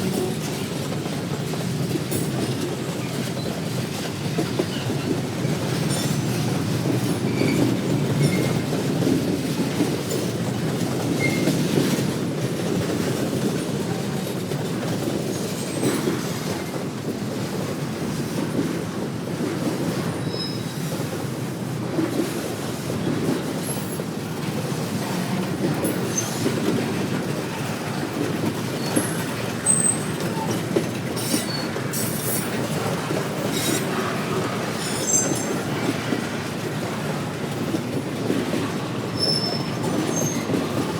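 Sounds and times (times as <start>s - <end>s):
railroad cars rumbling and clattering: 0.0s - 40.9s
high wheel squeals: 20.2s - 20.9s, 28.8s - 30.6s, 34.8s - 35.8s, 39.2s - 40.6s.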